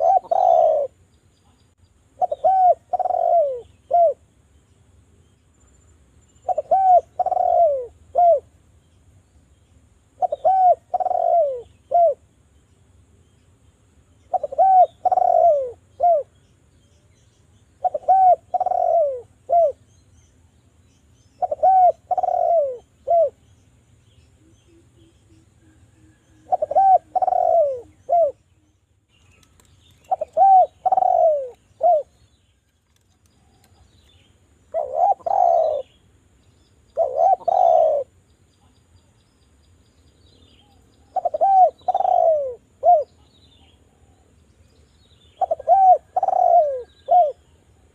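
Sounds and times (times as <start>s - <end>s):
dove cooing: 0.0s - 1.0s, 2.2s - 4.3s, 6.4s - 8.5s, 10.2s - 12.2s, 14.3s - 16.4s, 17.8s - 19.8s, 21.4s - 23.4s, 24.4s - 28.4s, 29.5s - 32.2s, 34.7s - 36.0s, 36.9s - 38.2s, 40.6s - 44.2s, 45.4s - 47.5s.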